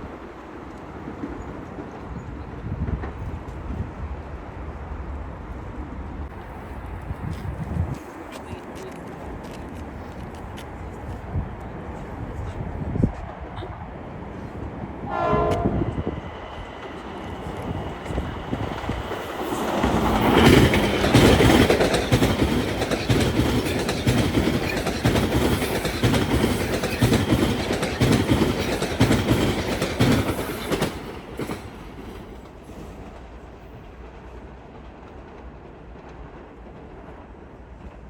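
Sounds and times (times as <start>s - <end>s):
train wheels clacking: 15.3s - 38.0s.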